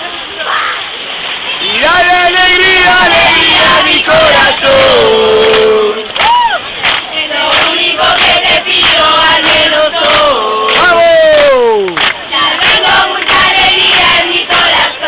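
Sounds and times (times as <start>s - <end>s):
crowd singing and chanting: 1.5s - 15.0s
rising and falling whoop: 6.2s - 6.7s.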